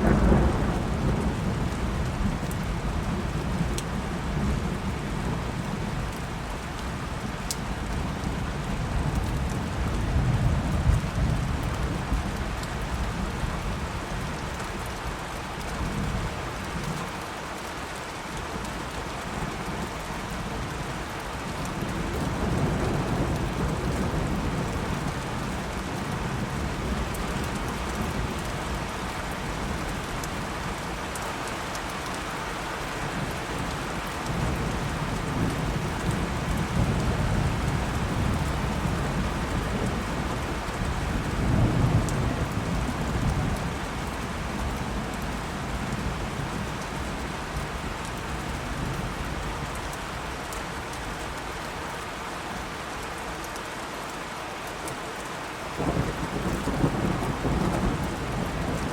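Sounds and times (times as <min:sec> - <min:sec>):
low rolling thunder: 0:00.0 - 0:06.2, 0:21.7 - 0:30.9, 0:32.9 - 0:49.7, 0:55.8 - 0:58.9
steady rain: 0:00.0 - 0:58.9.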